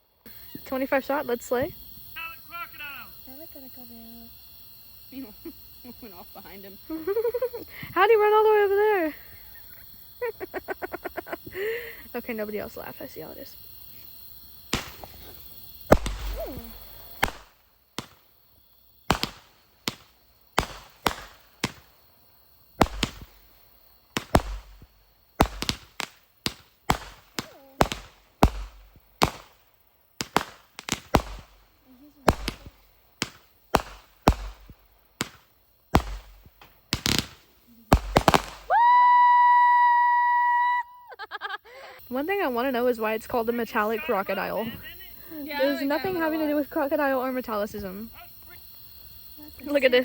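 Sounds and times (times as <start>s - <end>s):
firework cake bangs: 14.6s - 39.3s.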